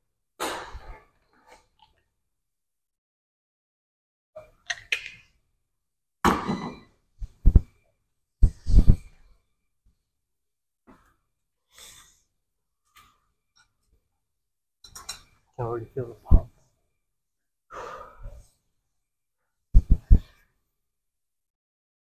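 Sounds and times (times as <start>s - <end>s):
person breathing hard: 17.7s - 18.6s.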